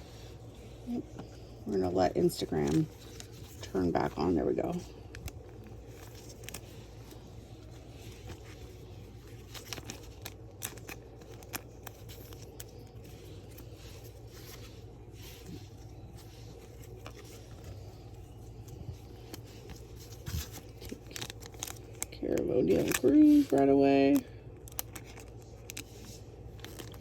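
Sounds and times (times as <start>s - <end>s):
steady low hum: 0.0s - 27.0s
wrappers and cards crinkling: 0.0s - 27.0s.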